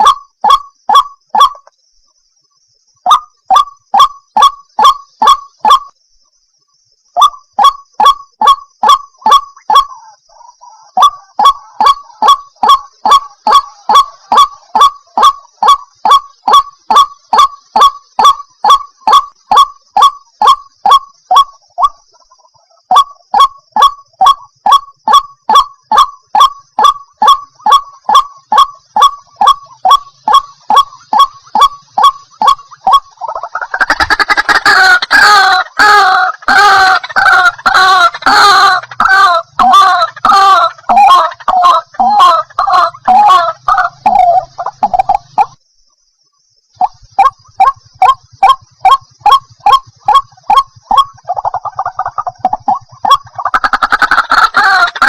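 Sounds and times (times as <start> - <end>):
waterhen sharp kwak calls: 7.2 - 45.6, 46.8 - 55.0.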